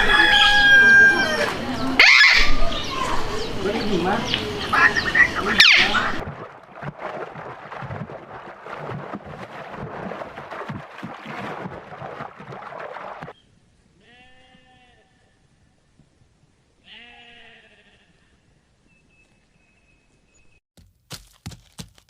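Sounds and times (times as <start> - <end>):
sheep bleating: 14.0 - 15.2, 16.8 - 18.3.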